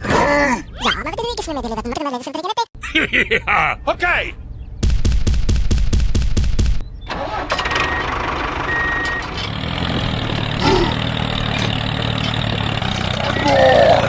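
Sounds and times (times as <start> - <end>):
machine engine idling: 7.3 - 14.0
engine chugging in rapid beats: 9.6 - 14.0.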